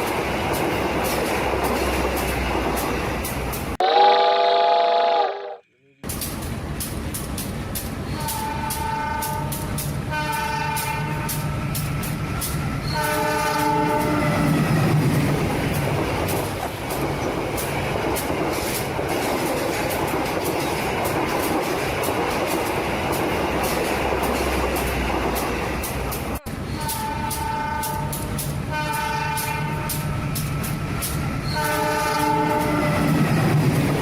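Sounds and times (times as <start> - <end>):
wheels clacking over rail joints: 0.0 - 3.8, 6.0 - 34.0
train rumbling: 0.0 - 4.1, 6.0 - 34.0
train horn blasts: 3.8 - 5.7, 8.1 - 11.5, 12.9 - 14.5, 26.4 - 30.4, 31.4 - 33.2.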